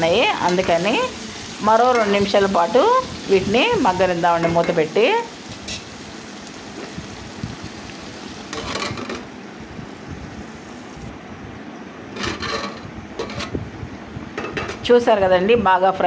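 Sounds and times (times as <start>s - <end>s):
vegetables sizzling in oil: 0.0s - 11.1s.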